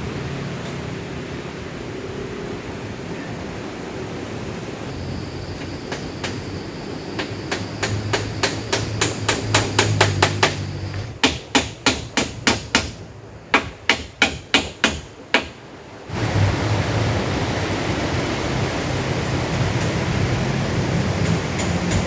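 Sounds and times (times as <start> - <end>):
steady rushing noise: 0.0 - 22.0
rapid hammer blows: 7.2 - 15.6.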